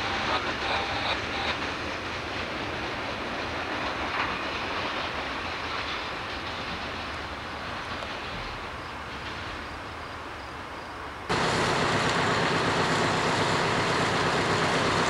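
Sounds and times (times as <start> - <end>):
faint rail clicks: 0.0 - 9.6, 11.3 - 13.6
train wheels rumbling: 0.0 - 15.0.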